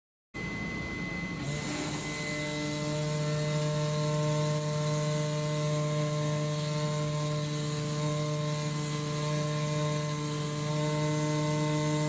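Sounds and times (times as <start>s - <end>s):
cutting tool buzzing: 1.2s - 12.0s.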